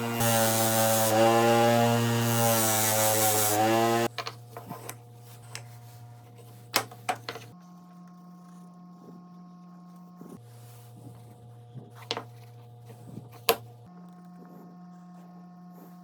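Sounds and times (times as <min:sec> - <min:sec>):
power tool motor running: 0:00.0 - 0:04.1.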